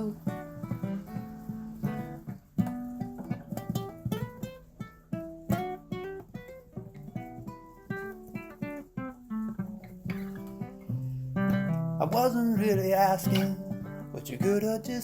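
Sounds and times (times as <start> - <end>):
person singing: 0.0 - 1.0, 12.0 - 15.0
acoustic guitar playing: 0.0 - 15.0.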